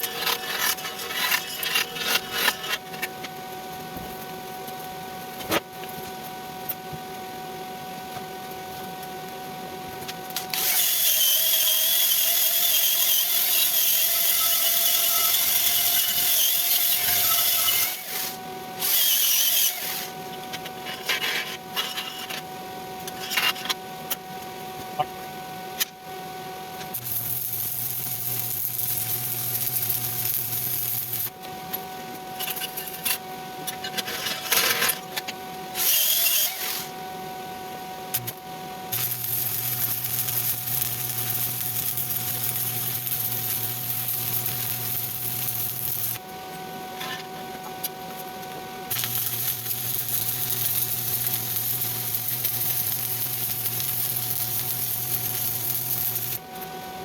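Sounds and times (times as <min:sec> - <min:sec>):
welding arc crackling hiss: 0:10.3 - 0:20.1, 0:26.9 - 0:31.4, 0:38.1 - 0:46.3, 0:48.9 - 0:56.6.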